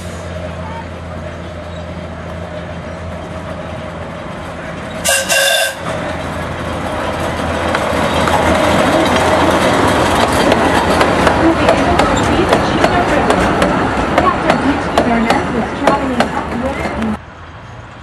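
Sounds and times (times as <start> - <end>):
train running with wheel clicks: 0.0 - 17.2
locomotive horn toot: 5.0 - 6.0.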